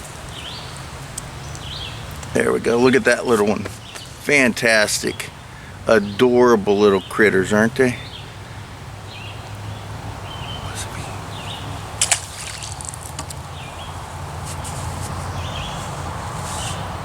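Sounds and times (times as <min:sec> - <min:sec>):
bird calling with high notes: 0:10.2 - 0:11.9.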